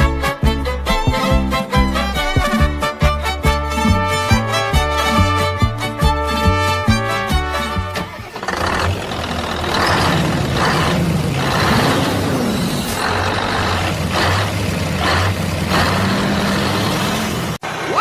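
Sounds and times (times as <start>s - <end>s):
violin music: 0.0s - 8.4s
truck engine humming: 0.0s - 18.0s.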